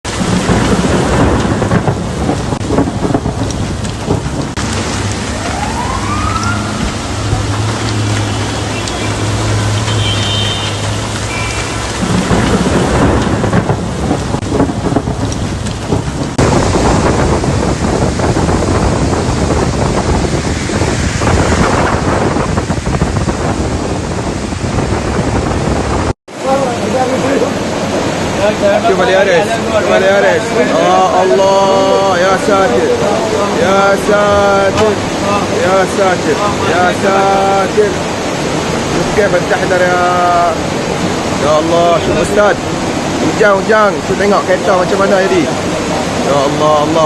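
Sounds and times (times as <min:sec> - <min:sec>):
heavy rain hissing: 0:00.0 - 0:47.0
low rumbling: 0:00.0 - 0:47.0
running water: 0:00.0 - 0:47.0
wind buffeting microphone: 0:00.0 - 0:47.0
rising whine: 0:04.6 - 0:10.1.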